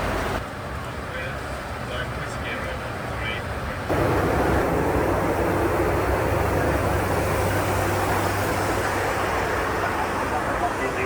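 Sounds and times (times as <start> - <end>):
rush of air: 3.9 - 10.7
low steady hum: 3.9 - 11.0.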